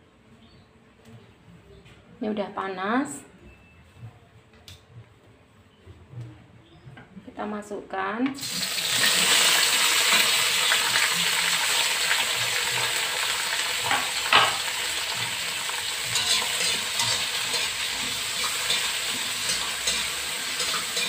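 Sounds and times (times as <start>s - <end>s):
vegetables sizzling in hot oil: 8.4s - 21.0s
metal spatula scraping wok: 13.8s - 21.0s.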